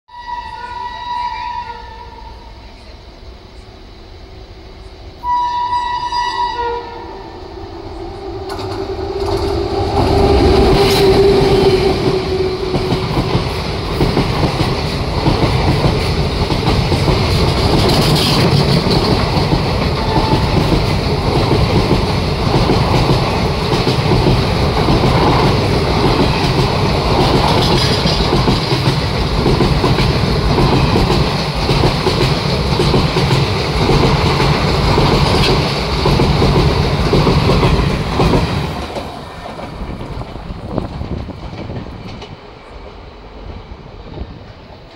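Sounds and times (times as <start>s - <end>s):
locomotive horn: 0.1s - 2.5s, 5.2s - 9.7s
train wheels clattering over rail joints: 8.5s - 43.0s.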